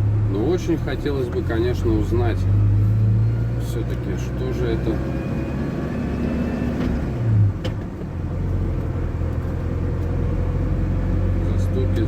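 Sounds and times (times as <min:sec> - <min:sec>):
road noise inside cab: 0:00.0 - 0:12.0
van engine running: 0:00.0 - 0:12.0.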